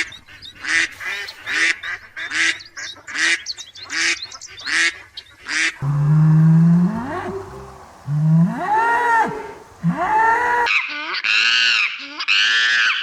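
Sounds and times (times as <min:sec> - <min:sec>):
bird honking calls: 0:05.8 - 0:10.7
cow mooing: 0:05.8 - 0:10.7.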